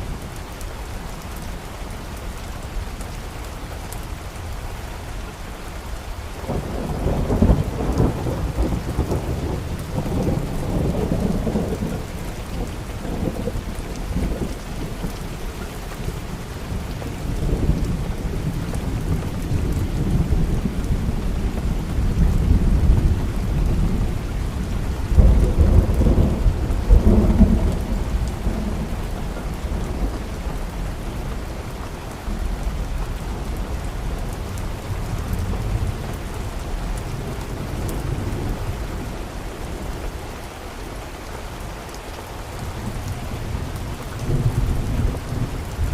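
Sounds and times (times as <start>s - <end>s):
steady rain: 0.0s - 45.9s
rolling thunder: 6.4s - 15.4s, 16.2s - 31.7s.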